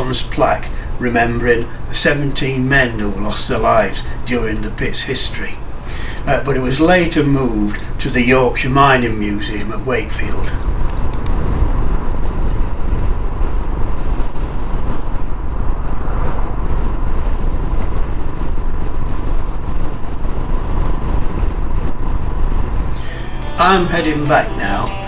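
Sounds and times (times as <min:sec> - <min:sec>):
wind and road noise: 0:10.6 - 0:22.8.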